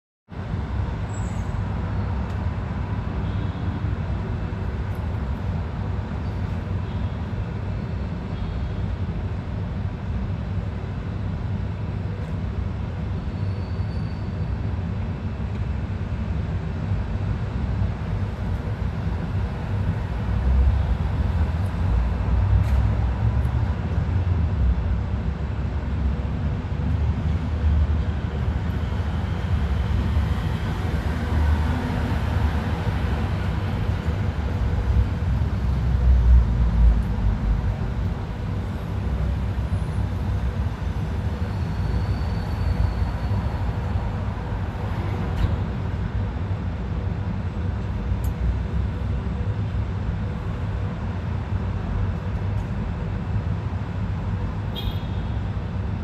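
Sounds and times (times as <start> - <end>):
steady low rumbling noise: 14.8 - 54.6.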